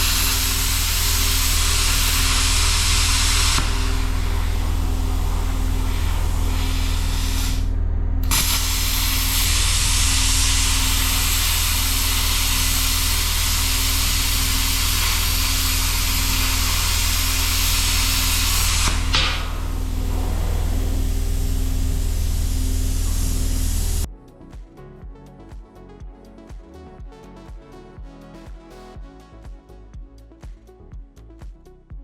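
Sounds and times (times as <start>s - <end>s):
plasma cutter hissing: 0.0s - 24.1s
low hum: 0.0s - 24.3s.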